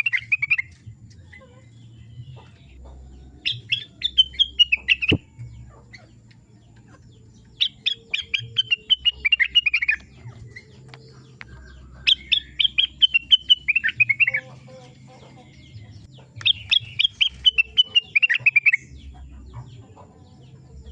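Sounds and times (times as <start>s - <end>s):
bird singing sharp falling notes: 3.8s - 5.4s.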